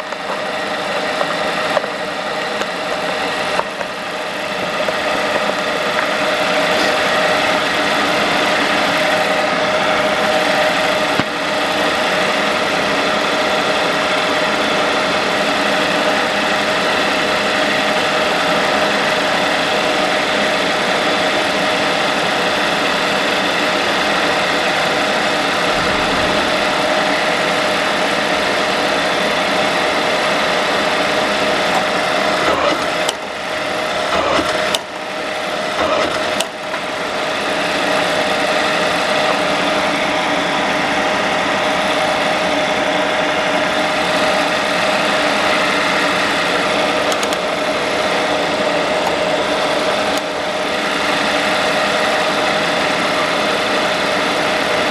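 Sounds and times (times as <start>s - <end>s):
paper drill motor humming: 0.0s - 42.9s.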